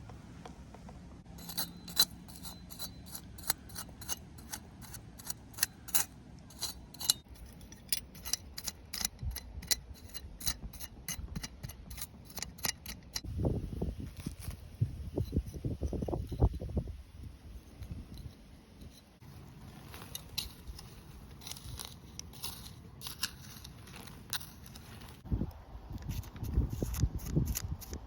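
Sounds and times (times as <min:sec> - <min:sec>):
scissors snipping: 0:26.0 - 0:28.0.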